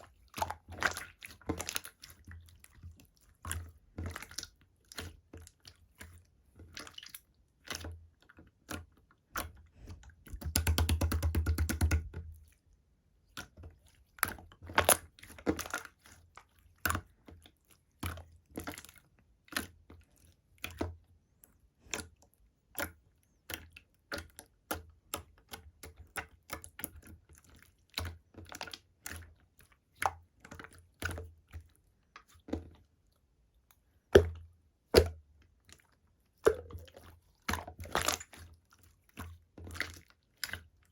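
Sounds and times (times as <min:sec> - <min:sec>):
slime clicking and popping: 0:10.3 - 0:12.1.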